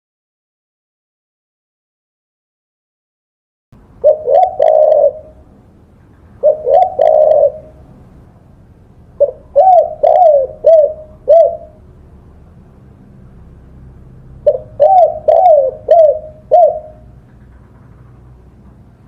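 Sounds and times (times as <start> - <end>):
dove cooing: 4.0 - 5.5, 6.3 - 8.2, 9.2 - 11.8, 14.4 - 17.3.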